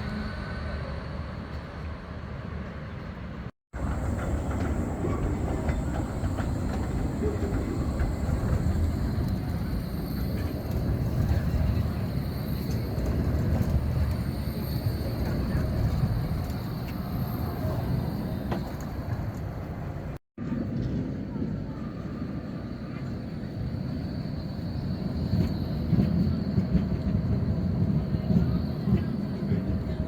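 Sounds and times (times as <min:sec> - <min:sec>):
tram rumbling on track: 0:00.0 - 0:30.0
clicking wheels on rails: 0:03.8 - 0:20.2.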